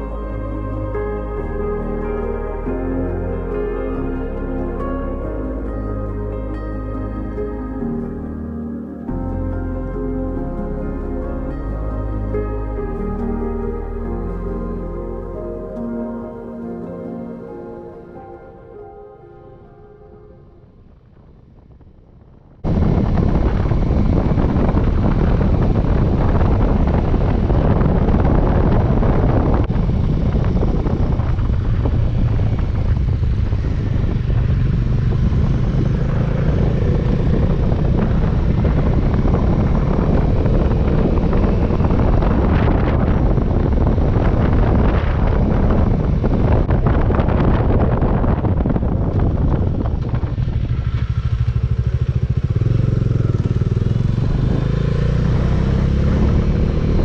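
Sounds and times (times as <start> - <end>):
wind rush on microphone: 20.5 - 57.0
motorcycle engine: 20.7 - 57.0.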